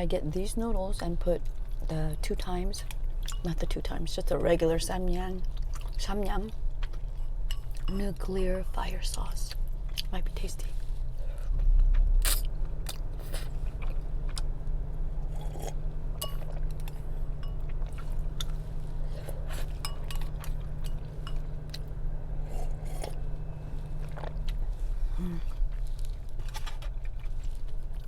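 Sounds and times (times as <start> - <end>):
steady low hum: 0.0 - 28.0
chewing noodles: 5.4 - 8.0, 10.8 - 28.0.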